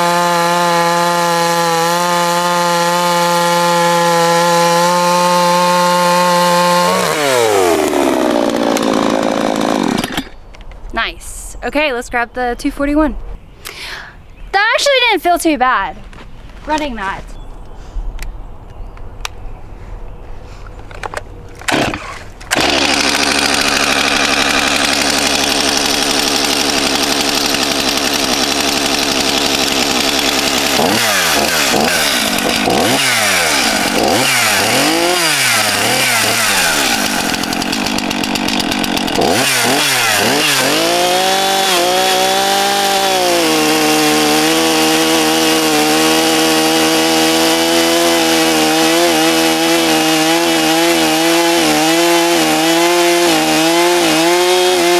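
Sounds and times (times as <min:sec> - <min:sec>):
chainsaw revving: 0:00.0 - 0:10.4, 0:21.6 - 0:54.9.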